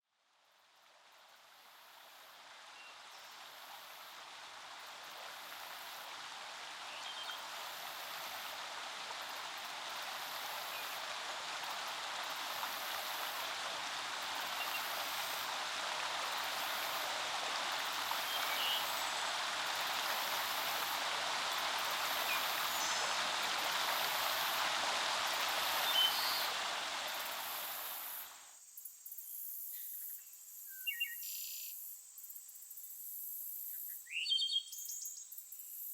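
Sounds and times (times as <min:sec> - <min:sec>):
forest stream flowing: 0:00.1 - 0:28.6.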